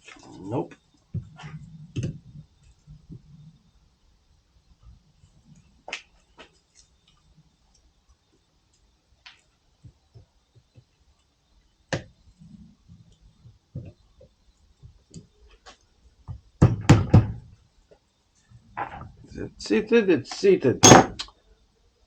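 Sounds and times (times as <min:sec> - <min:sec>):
sharp knocks on metal part: 0:20.8 - 0:21.2.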